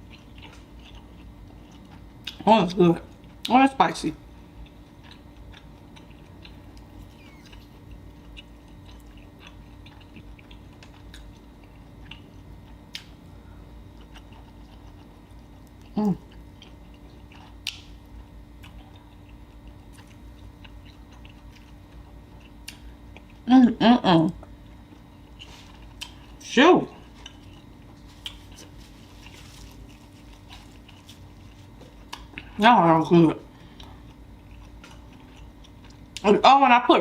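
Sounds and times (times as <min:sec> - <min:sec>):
chewing with wet mouth clicks: 0:00.0 - 0:02.4, 0:04.4 - 0:13.2, 0:13.9 - 0:23.5, 0:24.4 - 0:26.4, 0:27.2 - 0:32.5, 0:33.6 - 0:36.3
rising squeak: 0:07.1 - 0:07.5.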